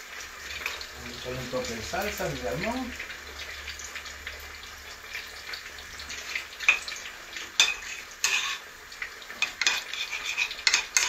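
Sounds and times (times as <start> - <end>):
oil sizzling in a pan: 0.0 - 11.0
utensils clinking and scraping: 7.6 - 8.6, 9.4 - 11.0.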